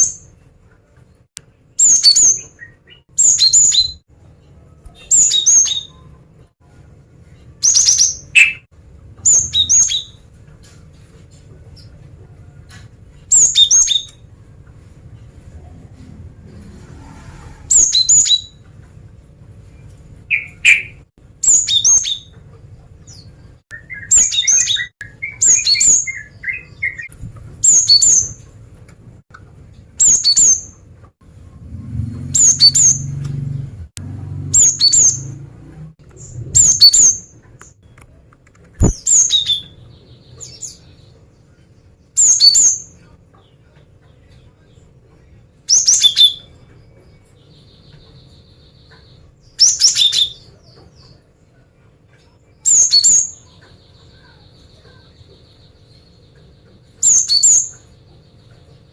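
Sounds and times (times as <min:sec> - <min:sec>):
soft bird twittering: 0:01.7 - 0:04.0, 0:04.8 - 0:06.2, 0:07.5 - 0:10.3, 0:11.8 - 0:14.3, 0:17.0 - 0:18.7, 0:20.3 - 0:22.4, 0:23.1 - 0:28.5, 0:30.0 - 0:30.8, 0:32.2 - 0:33.7, 0:34.5 - 0:35.4, 0:36.1 - 0:38.0, 0:38.8 - 0:51.3, 0:52.2 - 0:58.9.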